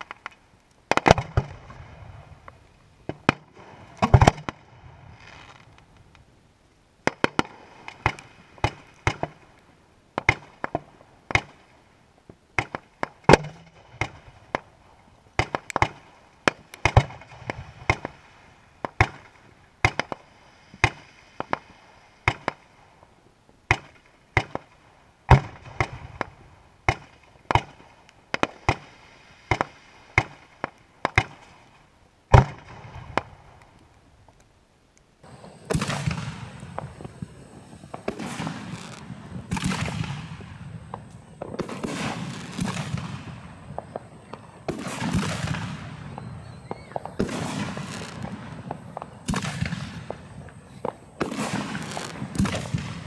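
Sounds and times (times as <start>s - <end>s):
fireworks crackling: 0.0s - 6.1s, 35.2s - 53.0s
fireworks banging: 35.2s - 53.0s.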